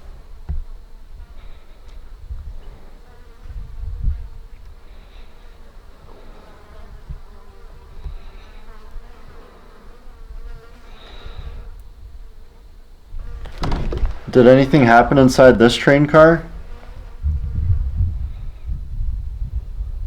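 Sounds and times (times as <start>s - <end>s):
flies buzzing: 0.0s - 17.6s
low rumbles: 13.2s - 19.9s.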